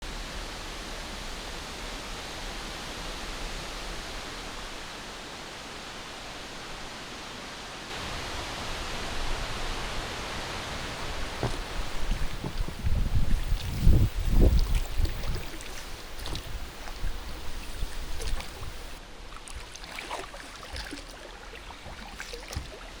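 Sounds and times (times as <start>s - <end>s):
strong wind rushing: 8.0s - 19.0s.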